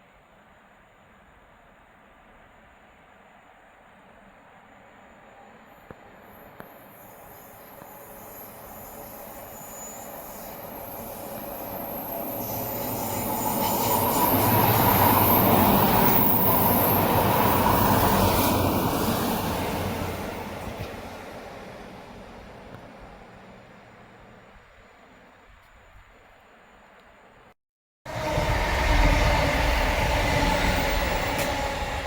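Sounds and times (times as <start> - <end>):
clicks of passing train: 1.1 - 26.1, 28.1 - 32.0
train wheels on rails: 3.6 - 24.7, 28.1 - 32.0.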